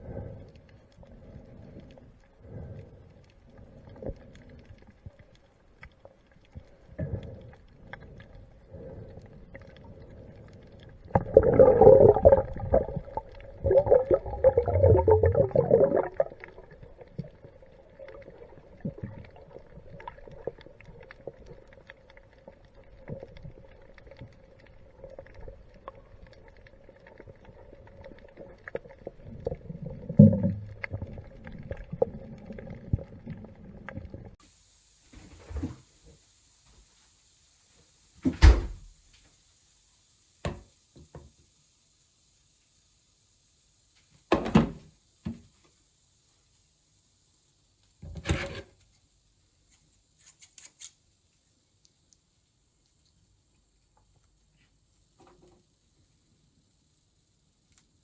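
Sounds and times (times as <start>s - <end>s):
muffled underwater hum: 0.0s - 35.0s
gurgling rush of bubbles: 11.0s - 21.6s, 27.2s - 34.4s
small clicks: 49.7s - 51.0s, 57.6s - 58.0s.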